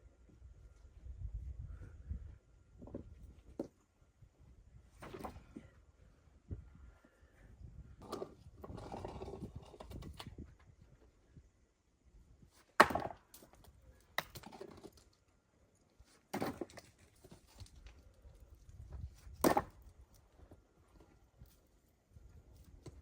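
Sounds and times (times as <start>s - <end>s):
wood being chopped: 12.8s - 13.4s, 19.4s - 19.8s.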